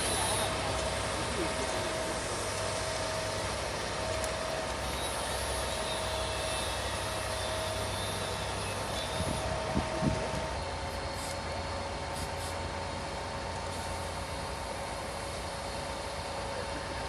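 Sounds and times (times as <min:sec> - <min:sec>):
machine whining tone: 0:00.0 - 0:11.4
machine engine hum: 0:00.0 - 0:12.0.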